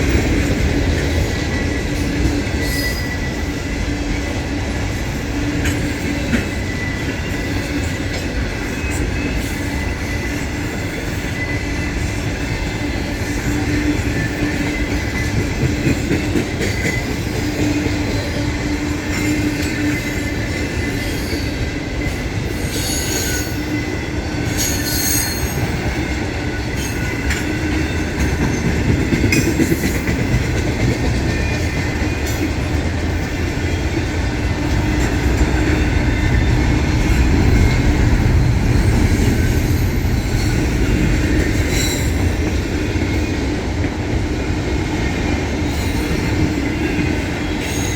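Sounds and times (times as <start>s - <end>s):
freight train wheels rumbling: 0.0s - 47.9s
train clanks and screeches: 0.0s - 47.9s
wheel squeal: 22.6s - 25.9s.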